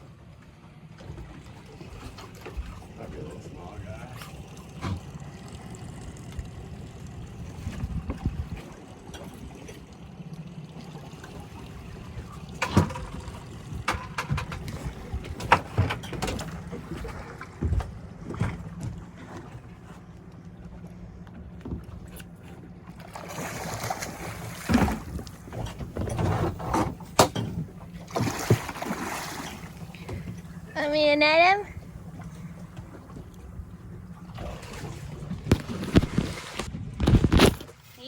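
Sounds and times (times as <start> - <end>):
boat engine idling: 0.0 - 35.6
knocks and clicks on boat: 4.1 - 9.9, 11.2 - 23.3, 23.9 - 37.8
rushing splashing water: 23.1 - 25.5, 27.9 - 30.8.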